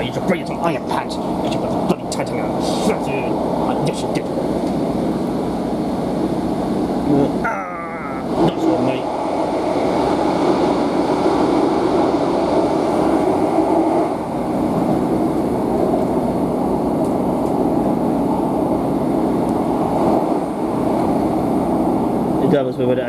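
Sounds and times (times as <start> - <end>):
train engine and wheels droning: 0.0 - 23.0.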